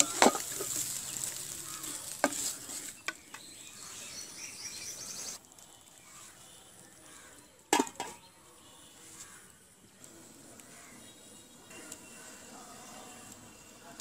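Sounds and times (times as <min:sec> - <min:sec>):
wooden spatula stirring: 0:00.0 - 0:03.4
vegetables sizzling in oil: 0:00.0 - 0:14.0.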